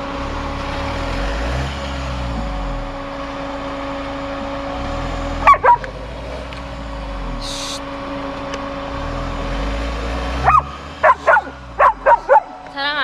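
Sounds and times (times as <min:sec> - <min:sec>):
van engine revving: 0:00.0 - 0:13.0
dog barking: 0:05.4 - 0:05.9, 0:10.4 - 0:12.6.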